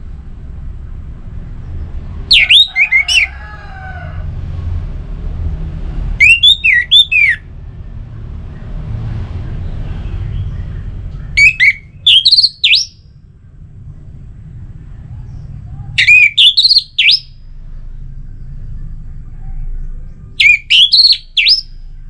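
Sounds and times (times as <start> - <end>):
steady low rumble: 0.0 - 22.0
thrush singing shrill whistles: 2.3 - 3.3, 6.2 - 7.5, 11.4 - 13.0, 16.0 - 17.4, 20.4 - 21.8.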